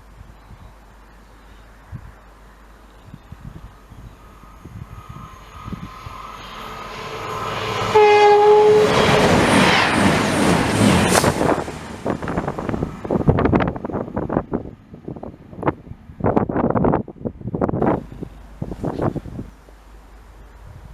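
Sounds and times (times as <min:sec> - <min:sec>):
rush of passing train: 0:00.0 - 0:20.9
train horn: 0:06.8 - 0:09.3.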